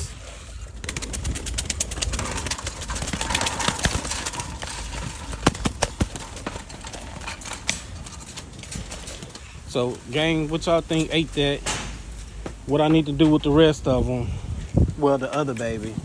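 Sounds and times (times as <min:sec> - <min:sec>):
rapid tapping and clicking: 0:00.7 - 0:07.8
sharp knocks: 0:11.6 - 0:12.6.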